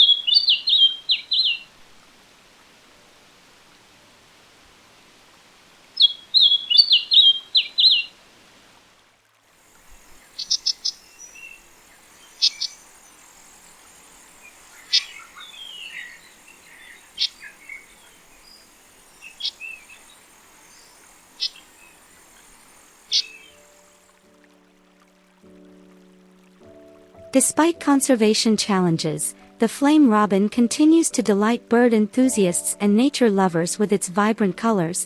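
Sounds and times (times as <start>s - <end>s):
songbirds singing: 0.0s - 1.7s, 6.0s - 8.1s, 9.9s - 24.0s
steady high buzz: 9.5s - 24.4s.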